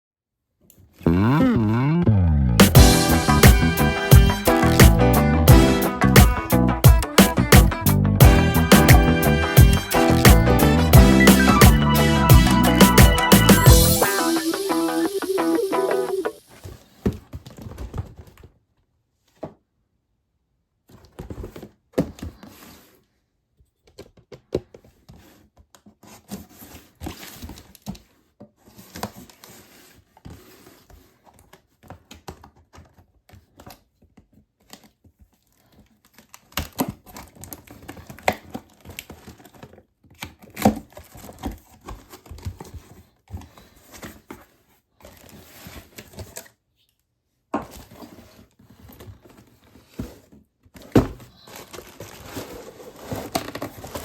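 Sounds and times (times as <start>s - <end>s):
cardboard and plastic tearing: 35.6s - 44.4s, 47.7s - 54.0s.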